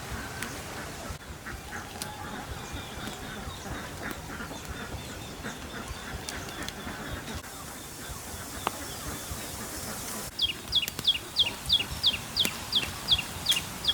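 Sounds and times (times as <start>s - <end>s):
poultry calling: 0.0s - 13.9s
steady background noise: 0.0s - 13.9s.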